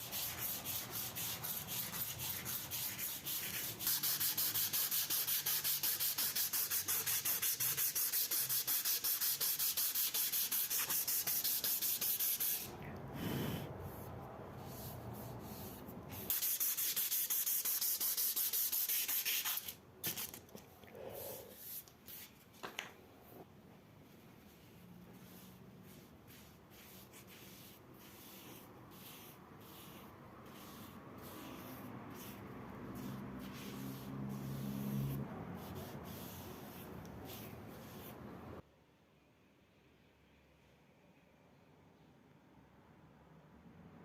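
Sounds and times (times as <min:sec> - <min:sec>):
hand sanding strokes: 0:00.0 - 0:19.7, 0:24.5 - 0:38.2.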